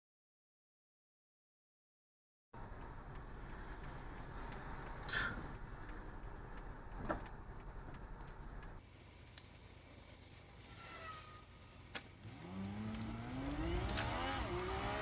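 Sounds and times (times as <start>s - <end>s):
car road and engine noise: 2.6s - 15.0s.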